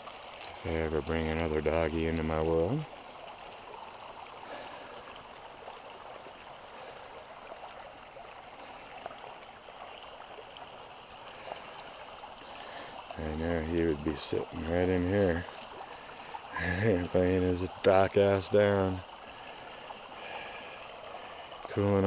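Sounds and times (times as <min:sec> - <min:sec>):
stream trickling: 0:00.0 - 0:22.0.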